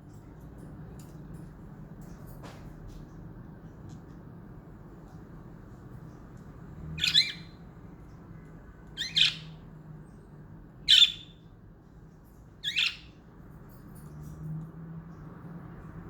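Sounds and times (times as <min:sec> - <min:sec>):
budgerigar scratchy calls: 0:07.0 - 0:07.5, 0:09.0 - 0:09.5, 0:10.9 - 0:11.3, 0:12.6 - 0:13.0.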